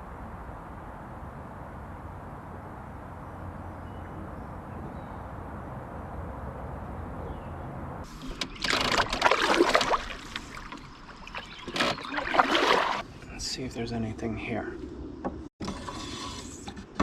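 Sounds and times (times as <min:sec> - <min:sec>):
outdoor background noise: 0:00.0 - 0:17.0
water splashing and sloshing: 0:08.0 - 0:13.0.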